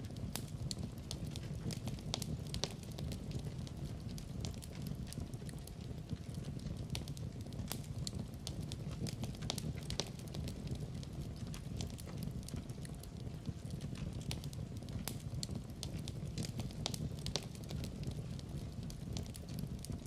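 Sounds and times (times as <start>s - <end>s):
fire crackling and popping: 0.0s - 20.0s.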